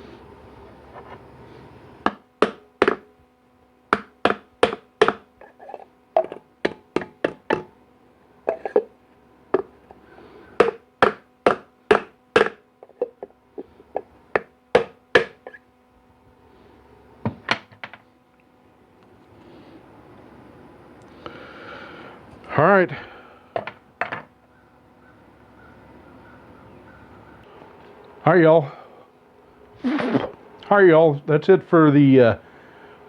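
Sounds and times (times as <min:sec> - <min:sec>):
faint steady hum: 0:00.0 - 0:33.0
hammer tapping on metal parts: 0:03.9 - 0:05.6.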